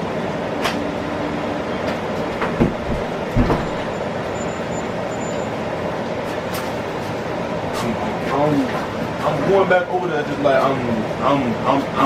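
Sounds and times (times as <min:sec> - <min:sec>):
steady rumbling: 0:00.0 - 0:12.0
dull thumps: 0:02.4 - 0:03.9.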